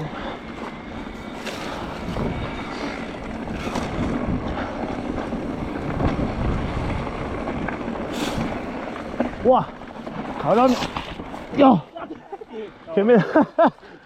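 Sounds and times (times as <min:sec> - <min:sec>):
bike tyres rumbling over dirt: 0:00.0 - 0:13.8
bike rattling: 0:00.0 - 0:14.0
wind on microphone: 0:01.6 - 0:09.4.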